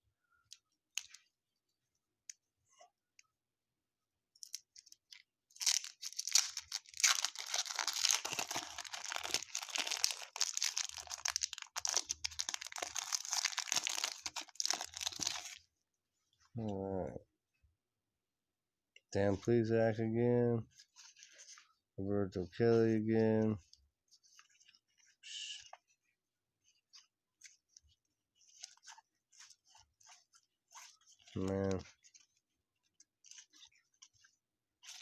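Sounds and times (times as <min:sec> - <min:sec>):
wrapper crackling and tearing: 0:04.4 - 0:15.6.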